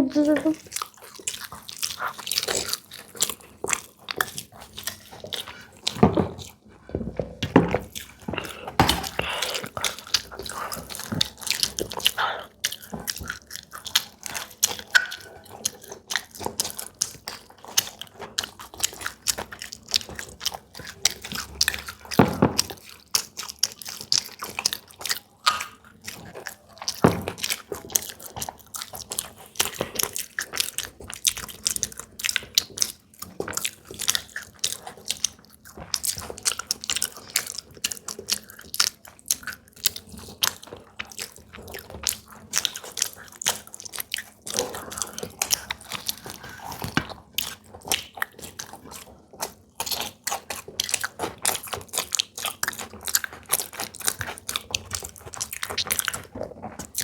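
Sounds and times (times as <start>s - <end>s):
wet mouth noises: 0.0s - 5.8s, 7.9s - 16.7s
chewing crunchy fried food: 0.0s - 57.0s.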